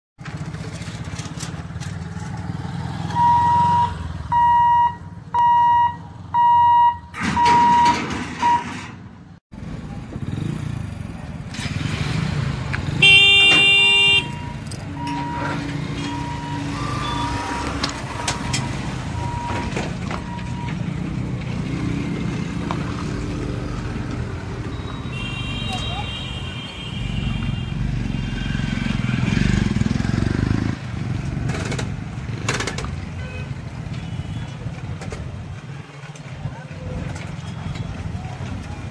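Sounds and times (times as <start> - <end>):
loud horn: 13.0 - 14.5.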